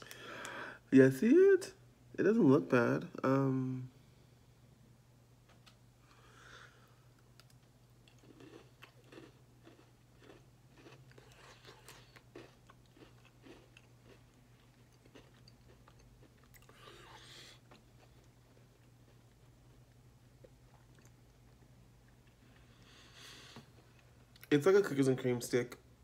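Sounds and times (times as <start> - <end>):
biscuit crunching: 7.3 - 22.7.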